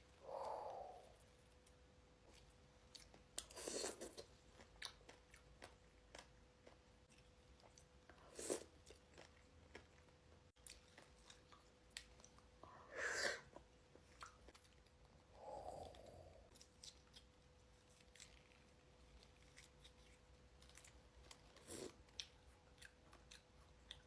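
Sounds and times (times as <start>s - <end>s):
chewing fruit wet smacks: 2.3s - 7.9s, 15.8s - 24.0s.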